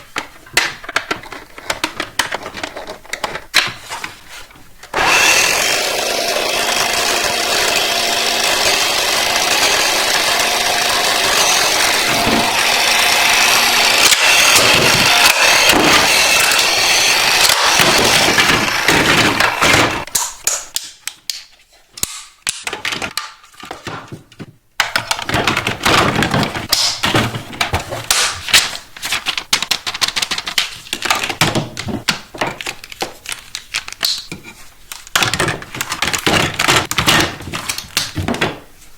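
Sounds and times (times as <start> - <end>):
small motor running: 5.0 - 20.0.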